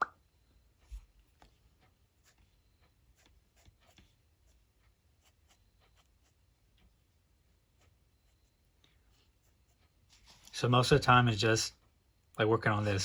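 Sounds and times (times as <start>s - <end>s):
pen scratching on paper: 0.9s - 6.6s.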